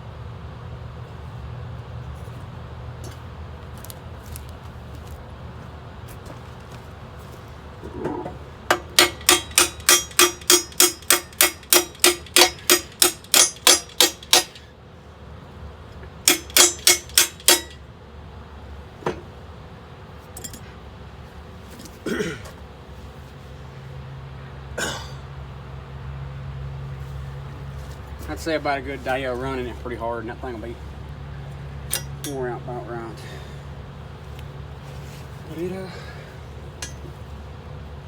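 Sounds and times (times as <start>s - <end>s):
low engine hum: 0.0s - 38.0s
hammer blows on steel: 8.7s - 14.6s, 16.3s - 17.8s.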